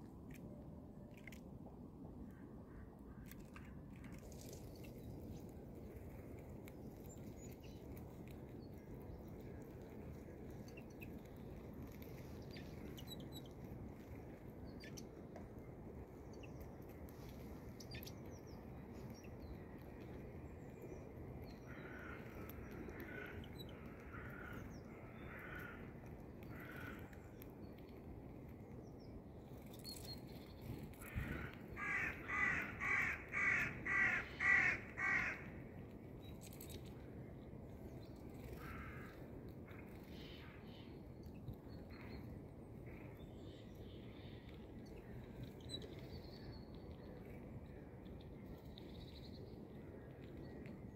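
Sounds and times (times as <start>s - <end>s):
steady low background noise: 0.0s - 50.9s.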